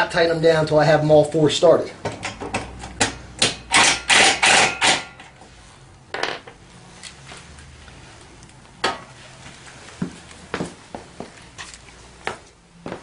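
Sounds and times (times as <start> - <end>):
metal clanks from tools and bolts: 2.1 - 5.4.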